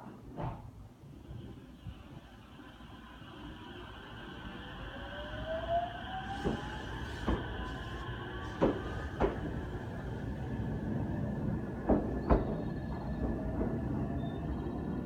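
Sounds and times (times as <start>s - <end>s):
train rumble: 0.4s - 15.0s
train motor whine: 1.5s - 15.0s
train wheels clacking over rail joints: 6.3s - 10.1s, 11.8s - 13.9s.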